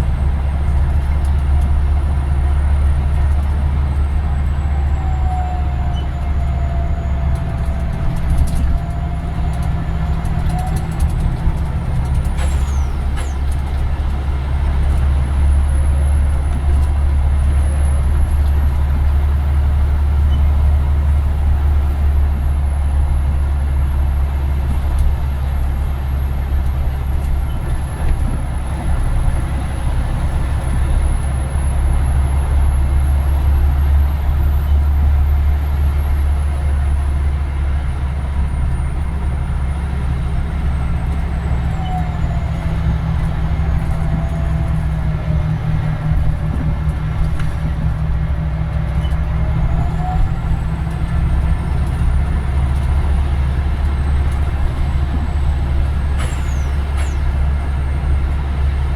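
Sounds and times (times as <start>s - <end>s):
bus engine drone: 0.0s - 58.9s
road noise: 0.0s - 58.9s.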